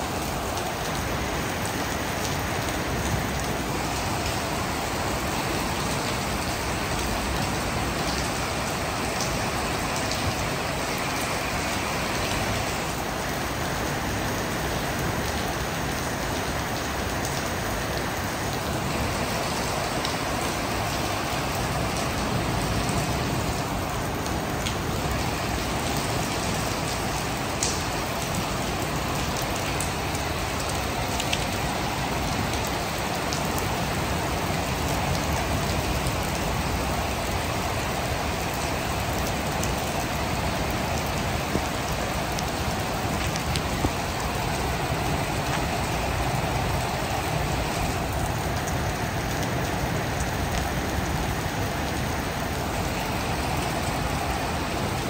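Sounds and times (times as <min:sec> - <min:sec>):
heavy rain falling: 0:00.0 - 0:55.0
raindrops ticking on surfaces: 0:00.0 - 0:55.0.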